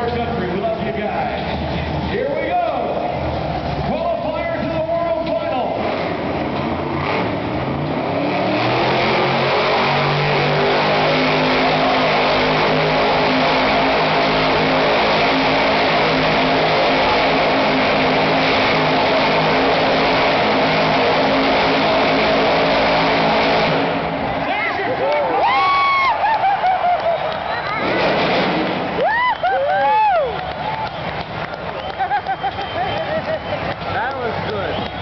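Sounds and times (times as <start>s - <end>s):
monster truck engine revving: 0.0s - 35.0s
spinning tyres: 25.4s - 35.0s.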